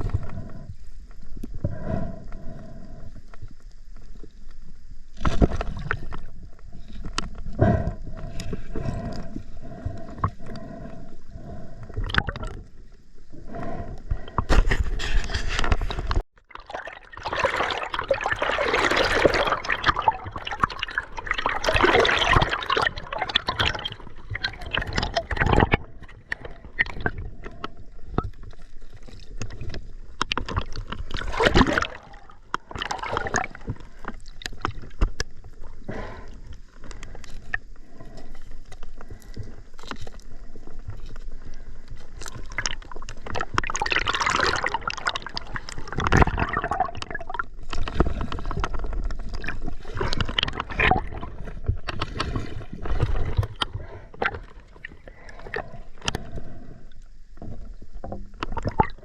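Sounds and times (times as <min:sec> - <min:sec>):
river water splashing and gurgling: 0:16.4 - 0:27.6, 0:30.3 - 0:35.0, 0:42.1 - 0:56.4.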